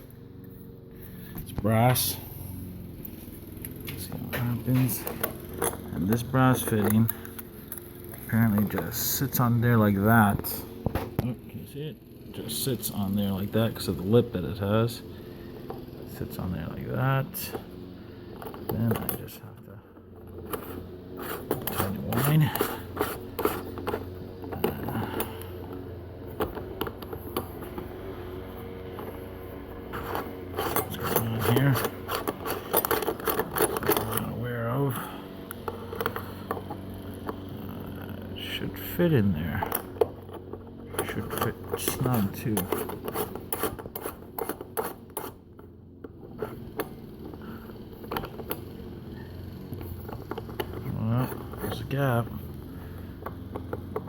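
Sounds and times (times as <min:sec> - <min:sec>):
steady low hum: 0:00.0 - 0:54.0
light scraping: 0:01.1 - 0:11.2, 0:20.2 - 0:45.4, 0:46.3 - 0:54.0
parts clicking together: 0:29.9 - 0:34.3.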